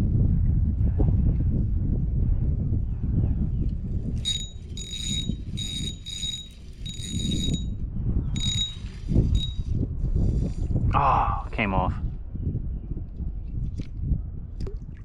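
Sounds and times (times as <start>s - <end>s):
wind rumble on microphone: 0.0s - 15.0s
fishing reel whirring: 4.2s - 7.7s, 8.4s - 9.8s.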